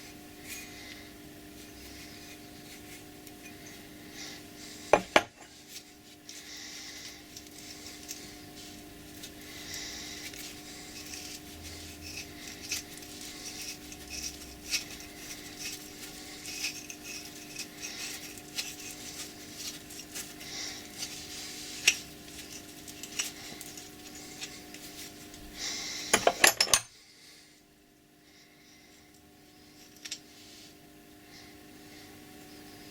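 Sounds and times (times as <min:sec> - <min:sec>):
faint steady hum: 0:00.0 - 0:32.9
metal parts clinking and scraping: 0:07.3 - 0:08.4, 0:10.1 - 0:25.4, 0:26.1 - 0:27.0, 0:29.8 - 0:30.2.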